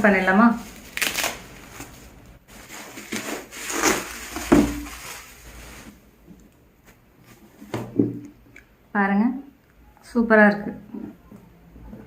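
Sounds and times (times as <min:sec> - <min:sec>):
packaging scraping and rustling: 0:00.6 - 0:06.0.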